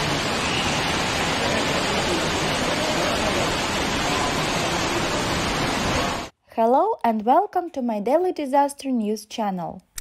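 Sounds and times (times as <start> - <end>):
floodwater running: 0.0 - 6.3
heavy rain downpour: 0.0 - 6.3.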